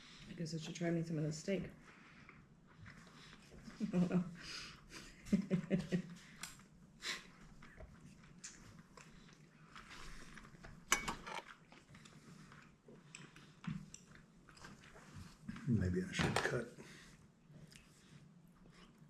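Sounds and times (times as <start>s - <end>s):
chewing: 11.4s - 15.1s.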